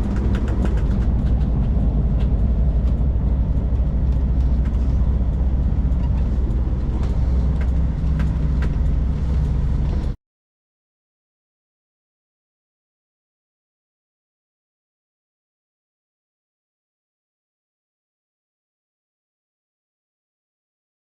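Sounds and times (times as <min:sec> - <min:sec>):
small clicks and rattles: 0:00.0 - 0:09.0
diesel engine drone inside cab: 0:00.0 - 0:10.2.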